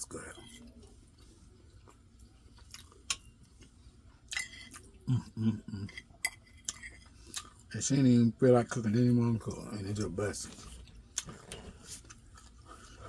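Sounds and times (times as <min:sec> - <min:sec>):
person chewing food: 0:00.3 - 0:07.7, 0:10.5 - 0:13.0
person humming: 0:05.1 - 0:05.9.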